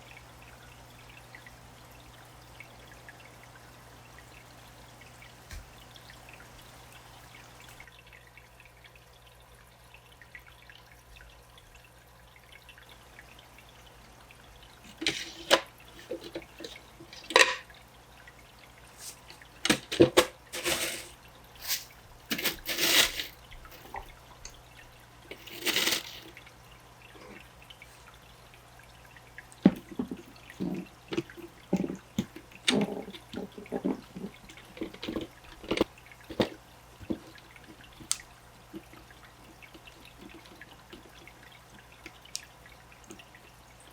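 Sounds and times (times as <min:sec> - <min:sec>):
low steady hum: 0:00.0 - 0:08.0
water pouring and splashing: 0:00.0 - 0:08.8, 0:10.2 - 0:43.9.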